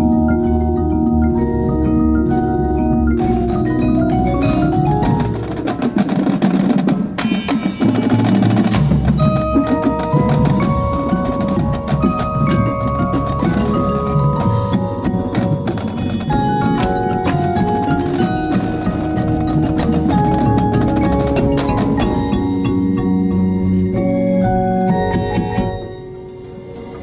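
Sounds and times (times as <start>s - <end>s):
low bass: 0.0s - 5.6s, 16.4s - 25.8s
drums and struck percussion: 0.0s - 27.0s
marimbas ringing: 0.0s - 27.0s.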